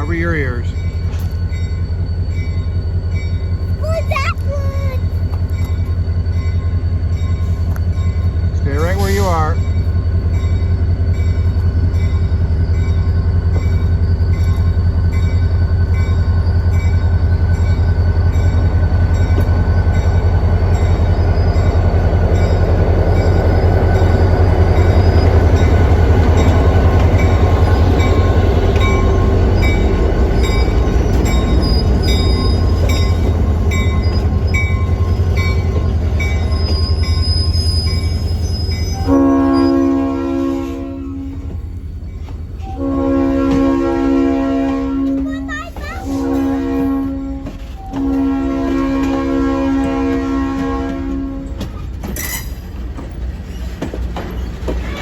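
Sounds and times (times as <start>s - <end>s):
diesel locomotive rumbling: 0.0s - 55.0s
train horn: 39.0s - 41.4s, 42.6s - 45.3s, 46.0s - 51.6s
train wheels clicking: 41.3s - 42.8s, 44.6s - 55.0s.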